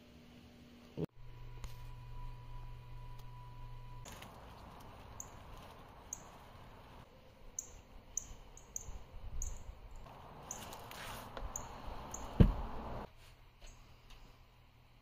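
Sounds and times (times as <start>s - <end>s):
flower stems rustling: 4.0s - 7.0s, 10.1s - 11.9s
small bird chirping: 5.1s - 6.4s, 7.5s - 10.8s, 11.5s - 12.4s.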